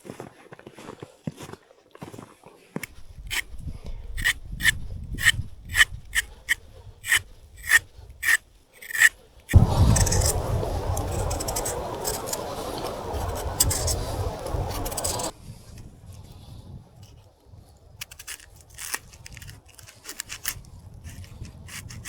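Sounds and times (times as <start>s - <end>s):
short sharp scraping strokes: 4.2s - 15.3s
rough rubbing noise: 4.2s - 15.4s.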